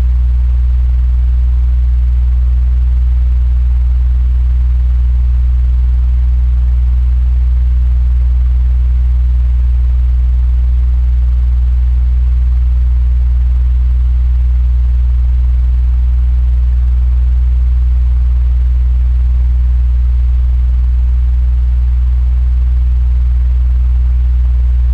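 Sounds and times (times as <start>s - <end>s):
electric fan running: 23.8s - 24.9s.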